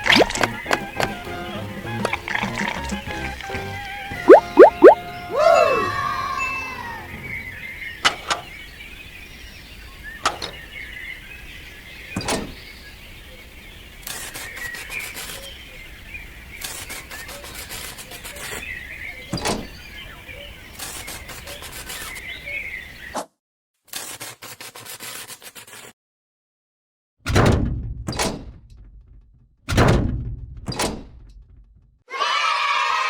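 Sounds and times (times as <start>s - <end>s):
small birds chirping: 0.0s - 5.3s, 6.7s - 23.2s.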